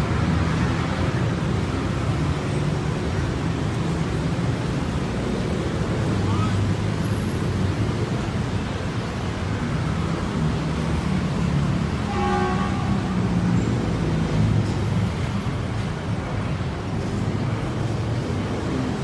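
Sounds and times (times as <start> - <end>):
train horn toot: 12.0 - 13.5.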